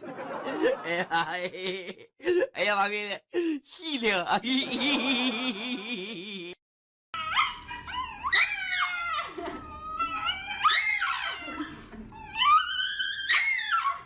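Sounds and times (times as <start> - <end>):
dog howling and whining: 7.2 - 14.0.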